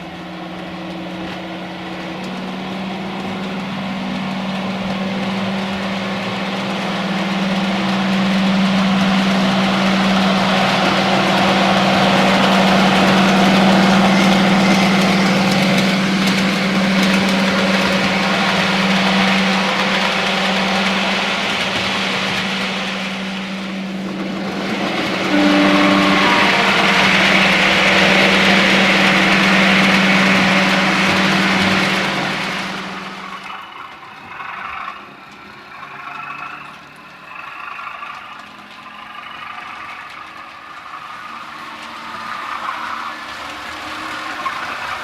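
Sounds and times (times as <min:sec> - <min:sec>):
model train electric hum: 0:00.0 - 0:45.0
wheels rolling on track: 0:00.0 - 0:45.0
short train horn: 0:07.5 - 0:21.1, 0:24.8 - 0:33.2.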